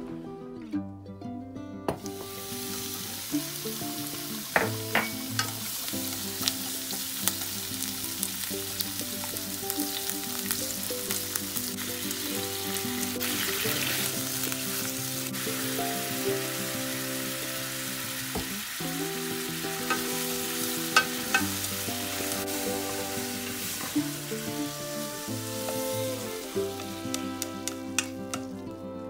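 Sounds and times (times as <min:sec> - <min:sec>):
soft background music: 0:00.0 - 0:29.0
octopus sizzling in hot oil: 0:02.0 - 0:28.6
chopsticks clicking: 0:27.1 - 0:28.5.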